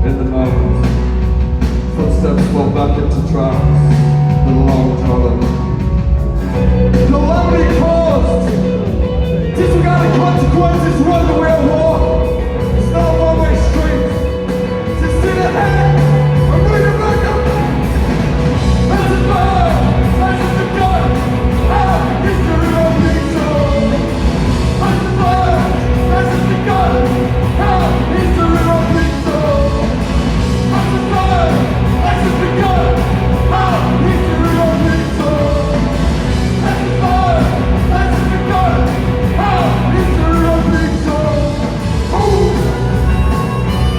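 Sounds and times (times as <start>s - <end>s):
live rock band playing: 0.0s - 43.9s
person singing: 18.8s - 30.0s, 30.6s - 43.9s.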